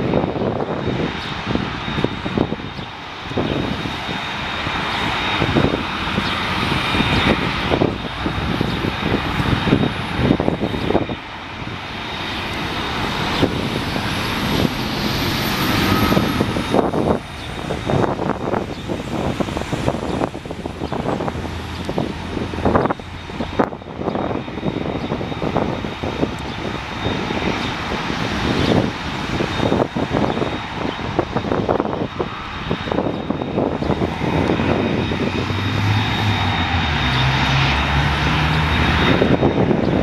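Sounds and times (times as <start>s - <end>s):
aircraft engines passing: 0.0s - 40.0s
high engine whine: 0.0s - 40.0s.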